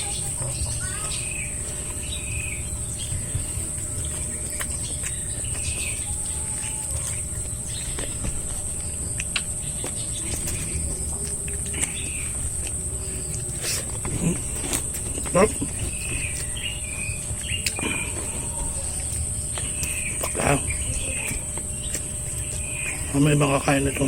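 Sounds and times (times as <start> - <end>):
bird chirps: 0.0 - 8.2, 15.1 - 24.0
high-pitched insect trill: 0.0 - 24.0.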